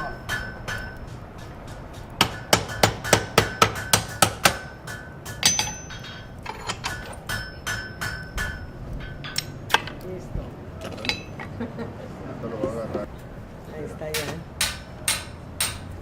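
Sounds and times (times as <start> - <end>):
anvil ringing: 0.0 - 9.8, 11.0 - 11.4, 14.2 - 16.0
hammer striking iron on anvil: 0.0 - 10.0, 11.0 - 11.4, 14.1 - 16.0.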